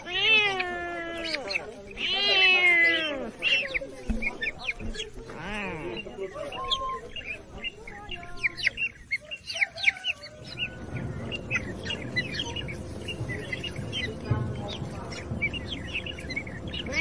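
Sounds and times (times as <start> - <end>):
small birds chirping: 0.0 - 17.0
low rumble: 10.3 - 17.0.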